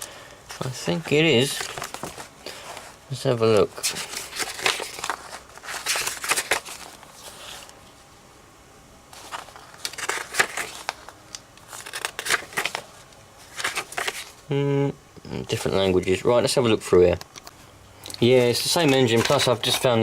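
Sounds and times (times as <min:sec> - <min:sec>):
paper pages rustling: 0:00.5 - 0:07.8, 0:09.1 - 0:14.4, 0:18.4 - 0:20.0.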